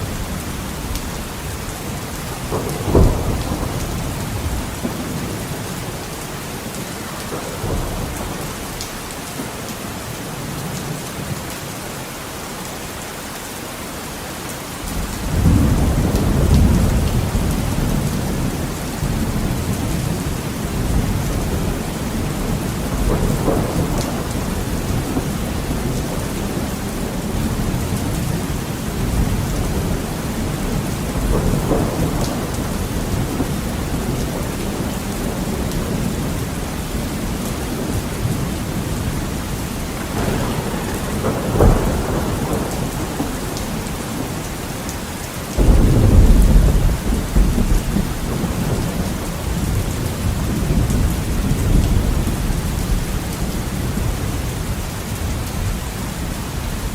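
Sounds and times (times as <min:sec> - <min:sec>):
thunder rumbling: 0:00.0 - 0:09.6, 0:15.0 - 0:55.8
heavy rain on window glass: 0:00.0 - 0:56.9
deep thunderclap: 0:01.8 - 0:06.0, 0:07.2 - 0:08.8, 0:15.2 - 0:44.9, 0:45.6 - 0:54.1.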